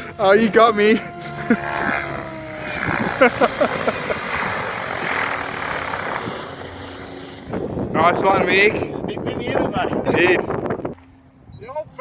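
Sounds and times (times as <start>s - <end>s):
model helicopter rotor and motor: 0.0s - 8.8s.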